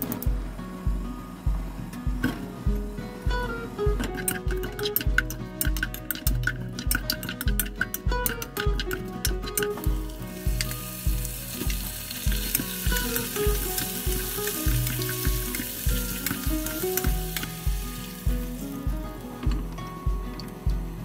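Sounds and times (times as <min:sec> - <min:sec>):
background music with beat: 0:00.0 - 0:21.0
food sizzling in butter: 0:09.5 - 0:19.4.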